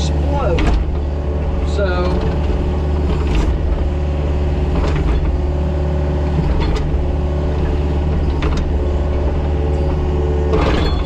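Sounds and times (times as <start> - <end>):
diesel engine running: 0.0 - 11.0
sharp machine knocks: 10.5 - 11.0.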